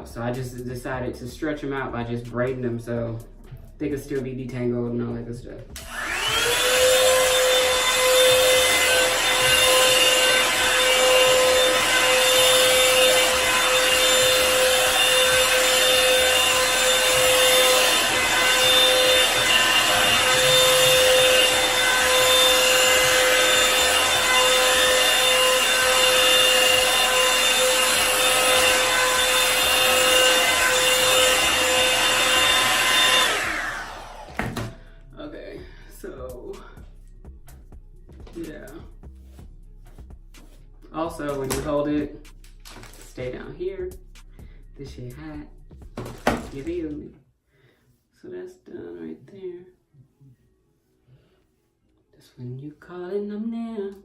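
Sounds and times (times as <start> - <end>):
hair dryer brush running: 5.7 - 36.8, 38.3 - 38.8, 40.4 - 47.0.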